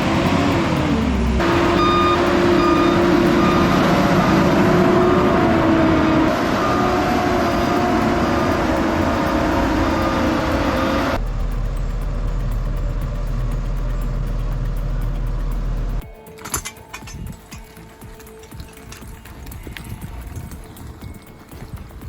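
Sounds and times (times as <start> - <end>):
heavy machine engine running: 0.0 - 16.1.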